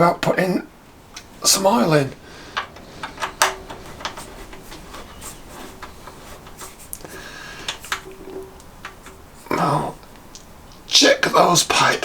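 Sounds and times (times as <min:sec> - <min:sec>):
hand tools clicking on metal: 0:01.1 - 0:11.0.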